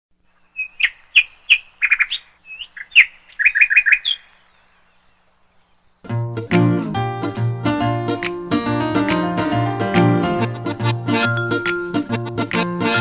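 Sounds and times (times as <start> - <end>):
bird chirping: 0.2 - 7.5.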